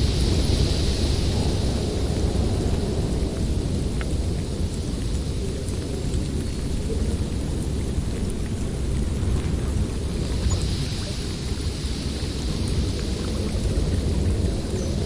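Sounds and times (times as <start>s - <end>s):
wind blowing through forest: 0.0s - 15.0s.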